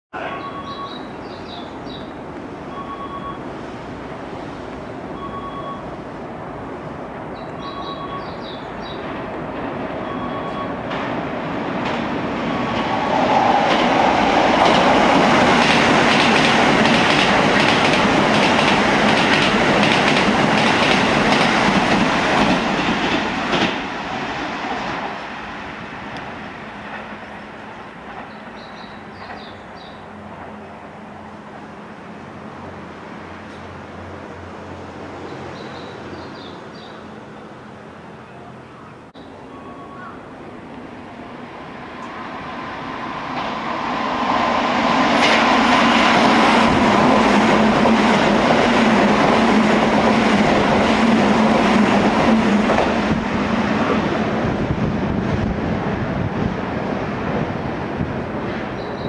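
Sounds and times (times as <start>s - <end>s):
electric train passing: 0.2s - 59.0s
wheels clacking over rail joints: 9.0s - 24.0s, 26.2s - 29.7s.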